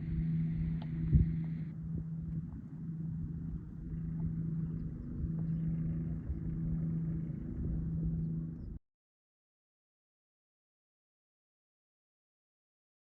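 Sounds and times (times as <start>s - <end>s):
engine humming and rumbling: 0.0s - 8.8s.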